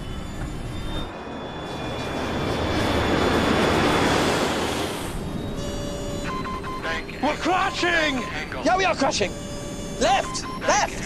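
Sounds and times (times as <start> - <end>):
jet engine and rushing air: 0.0 - 7.1.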